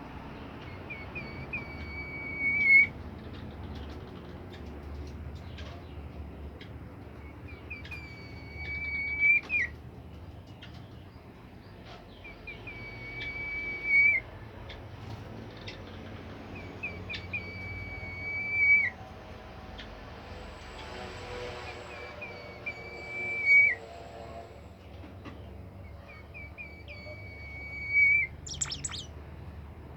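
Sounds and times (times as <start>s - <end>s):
songbird chirps and whistle: 0.9s - 2.9s, 7.5s - 9.7s, 12.2s - 14.2s, 26.4s - 29.1s.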